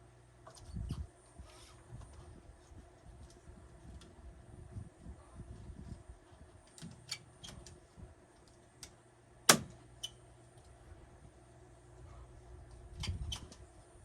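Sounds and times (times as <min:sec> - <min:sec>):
staple gun snap: 0:09.5 - 0:09.7.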